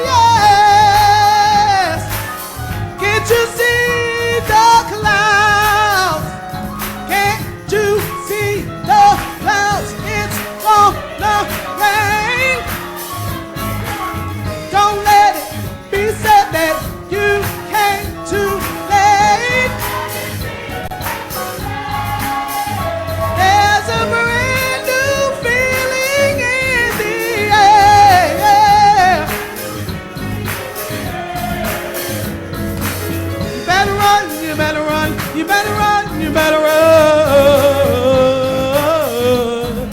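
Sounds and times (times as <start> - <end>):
gospel singing: 0.0 - 39.9
instrumental backing with bass: 0.0 - 39.9.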